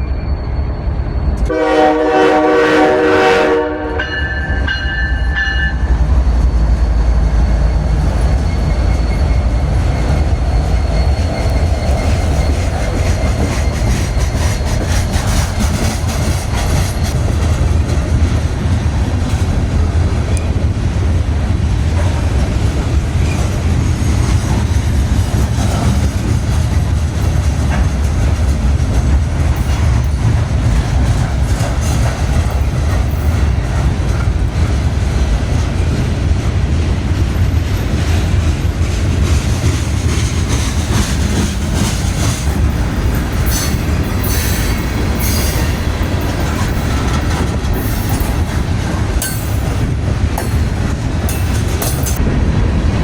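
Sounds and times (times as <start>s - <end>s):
train wheels rumbling on rails: 0.0s - 53.0s
train horn: 1.5s - 5.8s.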